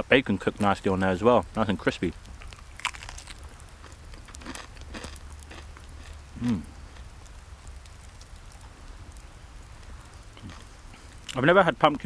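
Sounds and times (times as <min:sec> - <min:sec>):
person chewing crispy bacon: 0:02.2 - 0:08.7, 0:10.2 - 0:11.4
person humming mm: 0:06.4 - 0:06.8.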